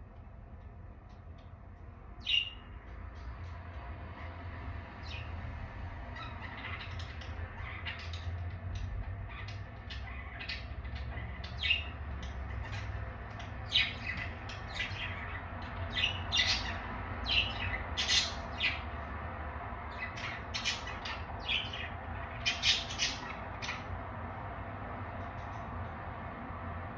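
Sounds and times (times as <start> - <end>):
budgerigars chattering and squawking: 2.2 - 3.6, 6.1 - 19.1, 19.9 - 24.0.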